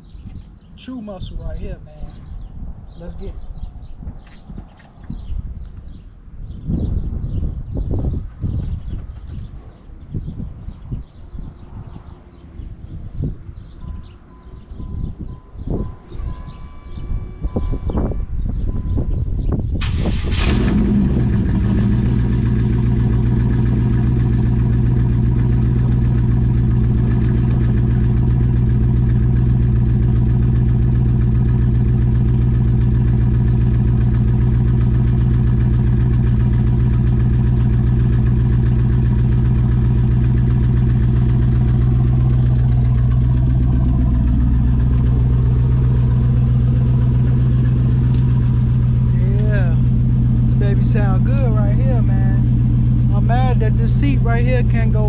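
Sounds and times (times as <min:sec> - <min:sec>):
car engine starting and idling: 0:14.0 - 0:18.9, 0:19.7 - 0:55.0.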